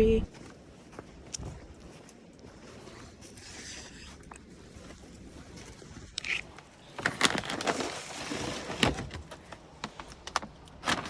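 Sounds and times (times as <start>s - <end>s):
bag rustling: 6.2s - 9.5s.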